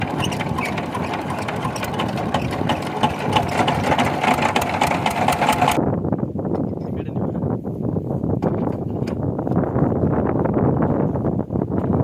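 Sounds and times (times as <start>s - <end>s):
small diesel engine clattering: 0.0s - 5.8s.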